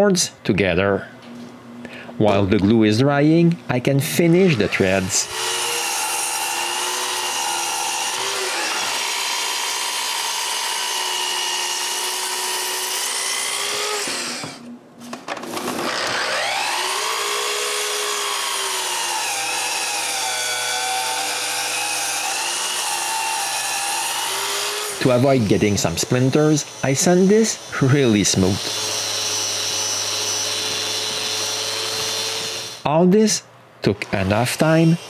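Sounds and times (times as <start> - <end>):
power tool motor on wood: 4.5 - 14.7, 15.4 - 32.8.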